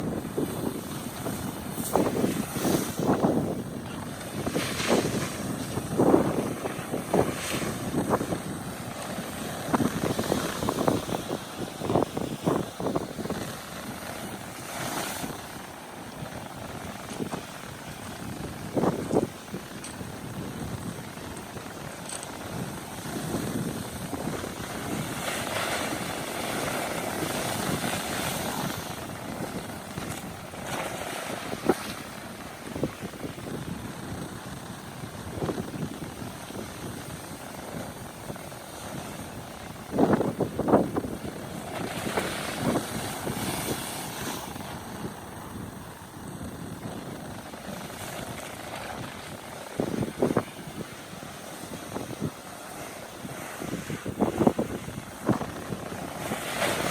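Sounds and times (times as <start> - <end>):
ocean waves breaking on rock: 0.0 - 56.9
wind buffeting microphone: 0.0 - 56.9
surf breaking on rock: 0.1 - 19.6.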